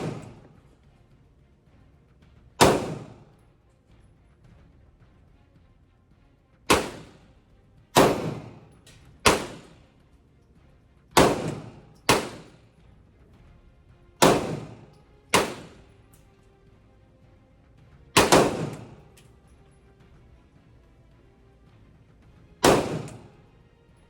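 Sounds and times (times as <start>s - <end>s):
gunshots with echo: 0.0s - 0.6s, 2.6s - 3.4s, 6.7s - 9.9s, 11.1s - 12.7s, 14.2s - 15.9s, 18.1s - 19.2s, 22.6s - 23.4s.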